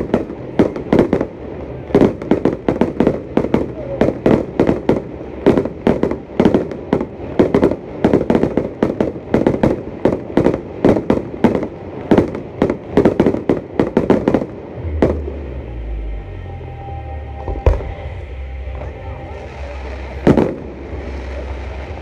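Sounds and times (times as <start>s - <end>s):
fireworks bursting: 0.0s - 16.6s, 17.4s - 22.0s
low rumble: 10.6s - 22.0s.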